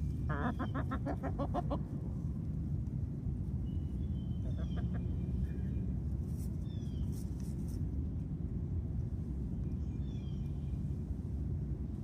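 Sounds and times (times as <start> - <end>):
steady low rumble: 0.0 - 12.0
birds chirping: 3.6 - 5.9.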